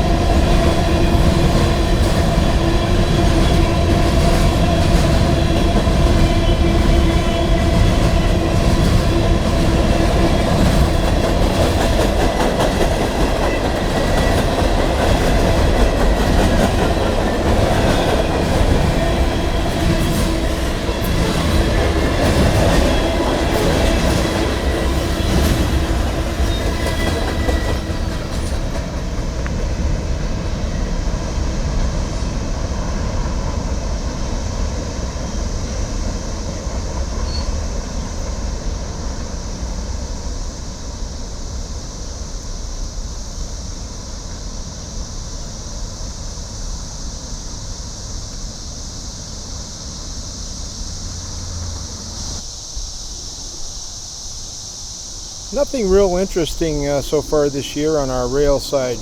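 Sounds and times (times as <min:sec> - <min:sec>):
train wheels clattering: 0:00.0 - 0:30.1
cicadas droning: 0:00.0 - 0:59.0.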